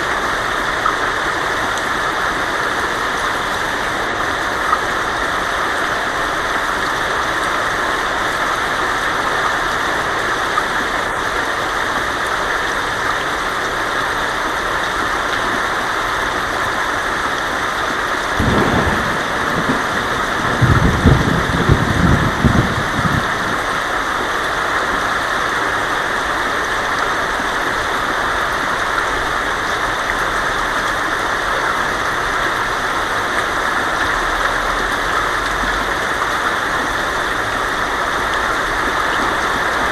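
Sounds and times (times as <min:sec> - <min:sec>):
heavy rain on a tin roof: 0:00.0 - 0:39.9
thunder rumbling: 0:18.4 - 0:23.9.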